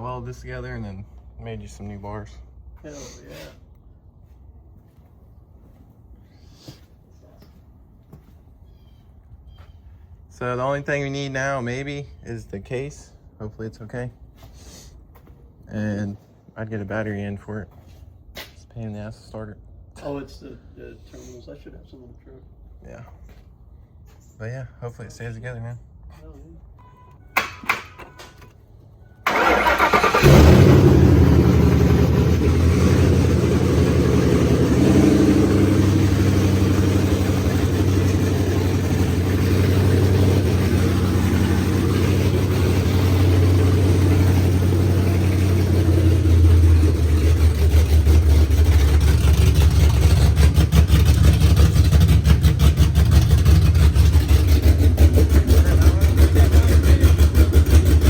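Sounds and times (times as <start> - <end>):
pickup engine cranking and running: 29.3 - 58.0.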